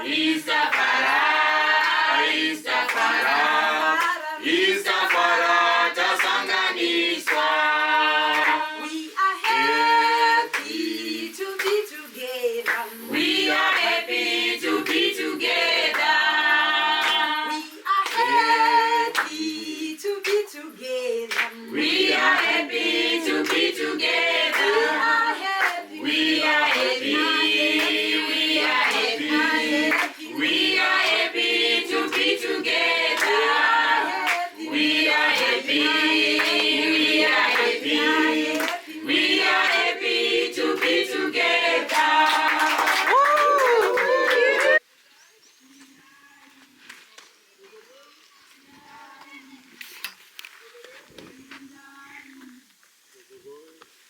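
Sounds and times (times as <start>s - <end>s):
group singing unaccompanied: 0.0s - 44.8s
hand claps: 0.7s - 1.1s, 1.7s - 2.0s, 2.7s - 4.2s, 4.9s - 5.4s, 6.0s - 6.5s, 7.2s - 7.5s, 8.3s - 8.7s, 9.4s - 9.7s, 10.5s - 10.9s, 11.5s - 12.0s, 12.6s - 14.0s, 14.7s - 15.1s, 15.9s - 16.2s, 17.0s - 19.4s, 20.2s - 20.6s, 21.3s - 21.6s, 23.4s - 23.8s, 24.5s - 24.9s, 25.5s - 25.9s, 26.7s - 27.0s, 27.7s - 28.1s, 28.8s - 29.2s, 29.9s - 30.3s, 31.0s - 31.3s, 32.0s - 32.4s, 33.1s - 34.5s, 35.3s - 35.6s, 36.3s - 36.8s, 37.5s - 37.8s, 38.5s - 38.8s, 40.8s - 41.0s, 41.8s - 44.8s.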